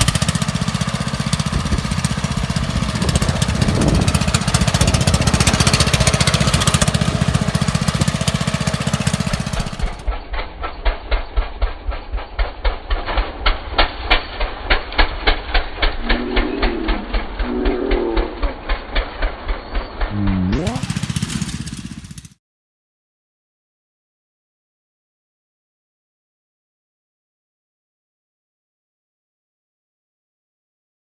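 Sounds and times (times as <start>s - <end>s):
lawn mower engine: 0.0s - 10.1s, 20.1s - 22.4s.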